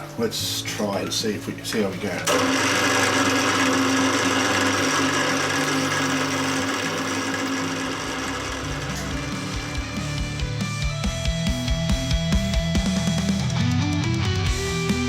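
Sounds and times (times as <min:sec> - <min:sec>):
milling machine motor hum: 0:02.2 - 0:11.1.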